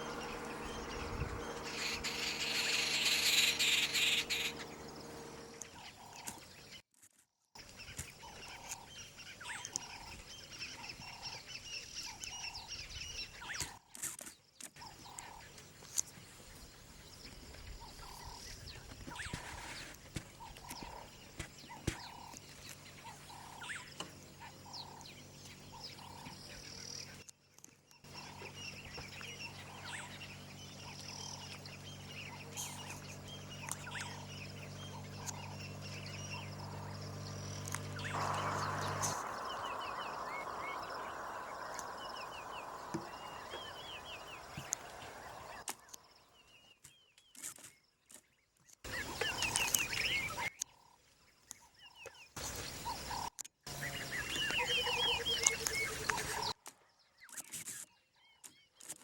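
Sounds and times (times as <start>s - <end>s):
steady low hum: 0.0s - 6.3s, 28.1s - 46.3s
birds chirping and calling: 0.0s - 6.8s, 28.1s - 46.6s, 48.9s - 56.6s
hiss: 38.1s - 45.6s.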